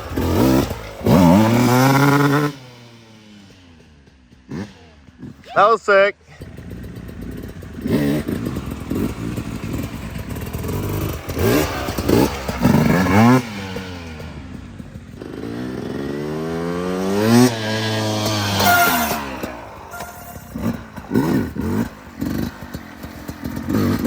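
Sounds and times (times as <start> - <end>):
dirt bike engine revving: 0.0 - 24.0
clatter over rough ground: 6.2 - 16.3, 17.8 - 24.0.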